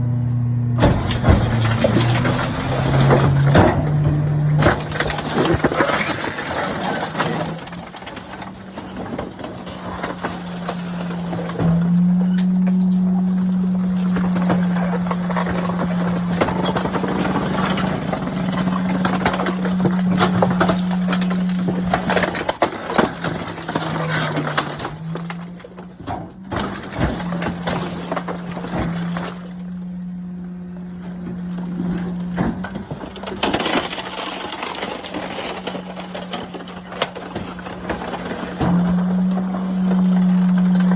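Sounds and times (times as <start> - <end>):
hydraulics humming: 0.0 - 40.9
truck engine revving: 0.0 - 40.9
compactor crushing a stove: 0.8 - 40.9.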